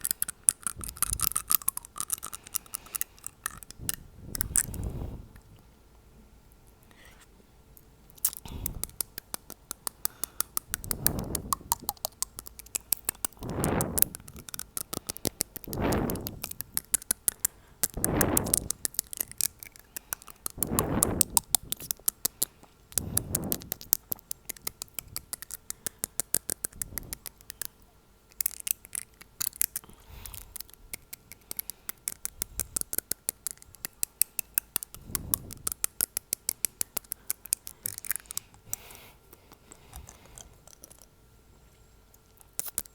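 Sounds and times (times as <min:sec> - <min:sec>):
air blown onto microphone: 0:02.6 - 0:05.5, 0:08.5 - 0:09.0, 0:10.7 - 0:12.3, 0:13.2 - 0:16.8, 0:17.8 - 0:19.4, 0:20.4 - 0:21.9, 0:23.0 - 0:23.8, 0:26.8 - 0:27.3, 0:35.0 - 0:35.6
fingernail tapping on teeth: 0:08.2 - 0:13.4, 0:14.0 - 0:27.8, 0:30.4 - 0:41.0.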